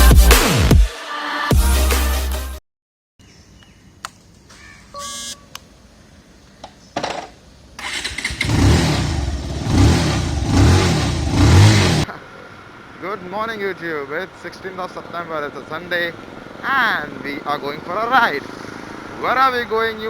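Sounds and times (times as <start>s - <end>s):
short electronic beep: 4.6s - 5.5s
motorcycle engine revving: 7.8s - 20.0s.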